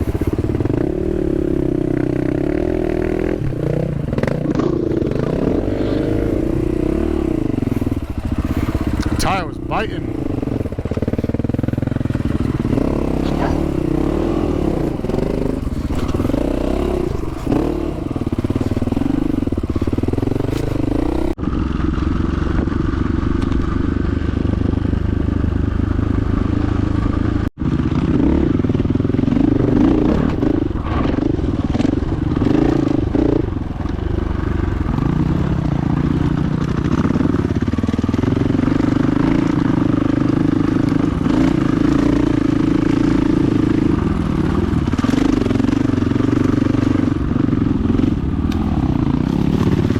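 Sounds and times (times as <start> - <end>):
dirt bike engine: 0.0 - 49.9
clatter over rocks: 10.4 - 21.3, 46.4 - 49.9.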